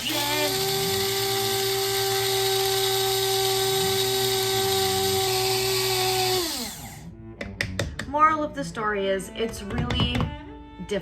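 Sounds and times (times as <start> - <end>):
drill-like motor whine: 0.0 - 7.1.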